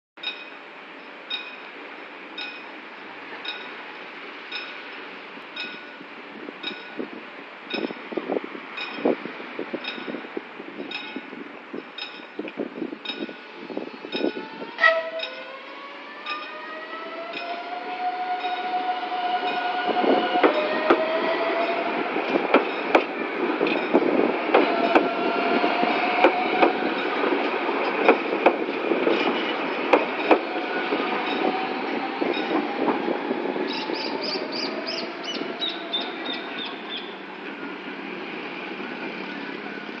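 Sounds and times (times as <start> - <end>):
train rumbling past: 0.2 - 40.0
wheels clacking over rail joints: 17.2 - 33.1.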